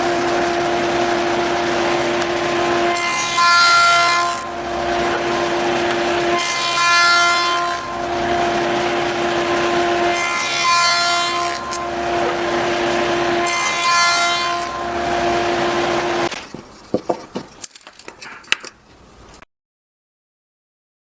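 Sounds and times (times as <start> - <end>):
power tool whine: 0.0 - 16.4
tool cutting wood: 0.0 - 19.4.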